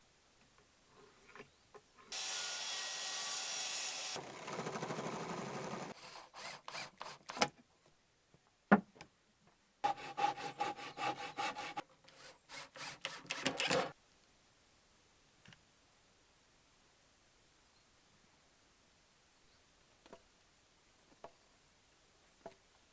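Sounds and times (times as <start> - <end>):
power tool hiss: 2.1 - 4.2
rasp strokes: 9.8 - 13.9
sawing and rubbing on wood: 9.8 - 13.9.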